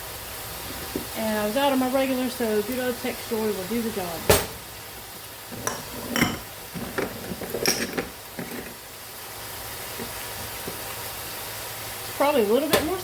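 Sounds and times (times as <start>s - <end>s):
vegetables sizzling in a pot: 0.0s - 13.0s
kitchen utensils clicking: 5.6s - 8.8s.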